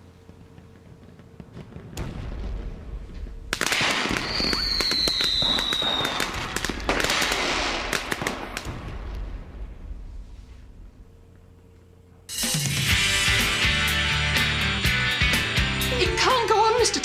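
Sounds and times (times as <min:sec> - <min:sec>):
whistling firework: 0:00.0 - 0:10.3
fireworks cracking and banging: 0:00.0 - 0:11.4, 0:12.3 - 0:13.2.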